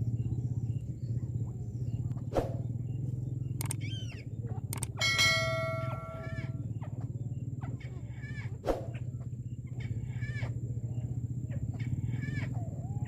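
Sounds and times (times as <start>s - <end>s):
steady low hum: 0.0s - 13.0s
bird chattering calls: 3.3s - 13.0s.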